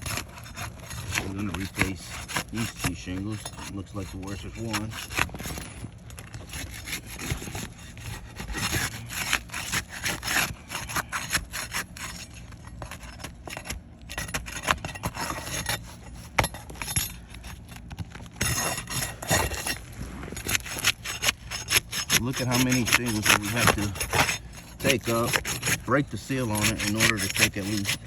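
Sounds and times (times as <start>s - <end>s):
roof shingles scraping and crackling: 0.0s - 28.0s.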